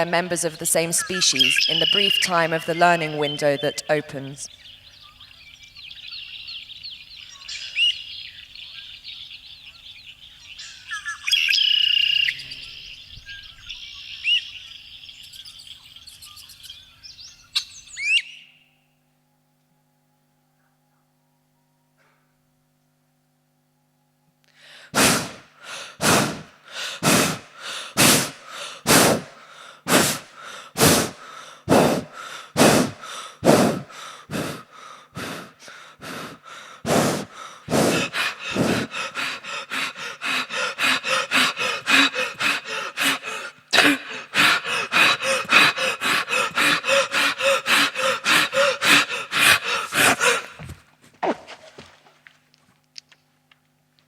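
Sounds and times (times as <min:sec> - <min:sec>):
person gasping rhythmically: 0:24.6 - 0:50.8.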